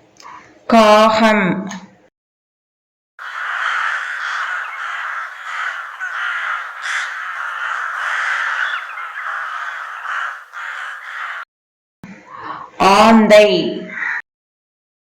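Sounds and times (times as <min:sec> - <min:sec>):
crows cawing: 0:03.2 - 0:11.5, 0:13.9 - 0:14.2.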